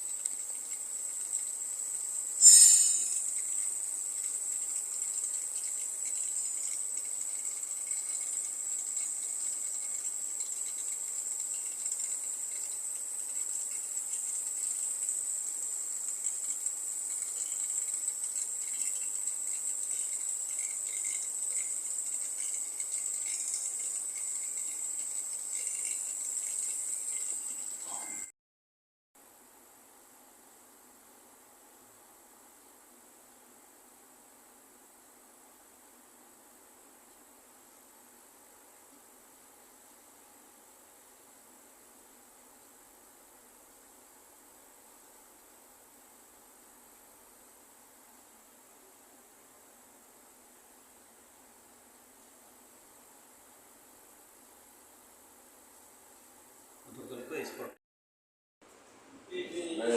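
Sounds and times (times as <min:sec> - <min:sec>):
electrical coil whining: 0:02.0 - 0:04.1.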